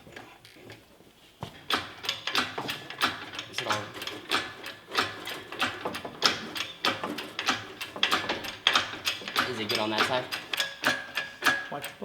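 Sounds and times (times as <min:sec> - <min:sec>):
ratchet clicking: 0:02.0 - 0:12.0.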